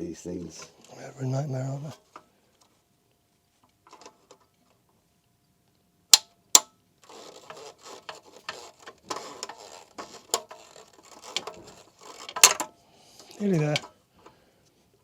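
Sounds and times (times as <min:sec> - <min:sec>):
clicking and scraping on pipe fittings: 0:03.6 - 0:04.8, 0:06.2 - 0:14.4.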